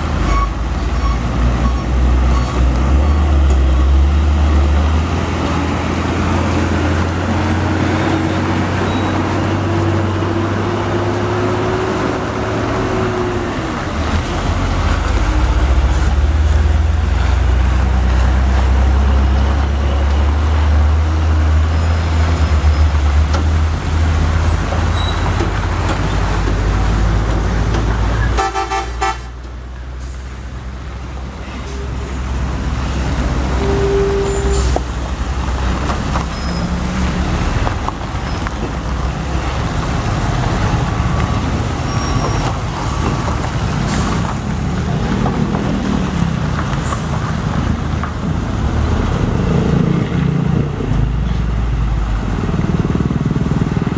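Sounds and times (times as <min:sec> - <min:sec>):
heavy truck engine rumbling: 0:00.0 - 0:53.9
road traffic noise: 0:00.0 - 0:53.9
vehicle horn: 0:28.3 - 0:29.3, 0:33.6 - 0:34.8.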